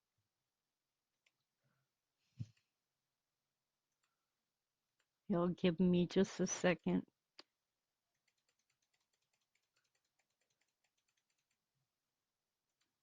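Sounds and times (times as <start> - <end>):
computer keyboard typing: 8.1 - 11.7.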